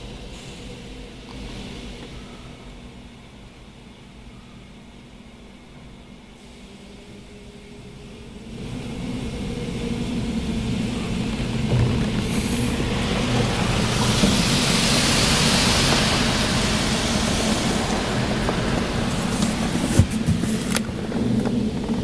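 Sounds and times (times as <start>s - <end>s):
car wash hiss: 0.0s - 22.0s
car wash machinery rushing: 6.4s - 22.0s.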